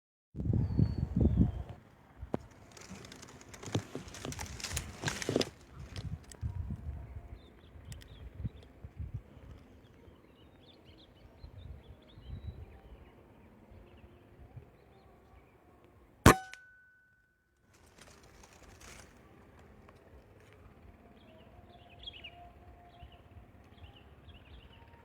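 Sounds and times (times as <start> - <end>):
faint outdoor background noise: 0.4 - 25.0
gunshot: 16.3 - 16.7.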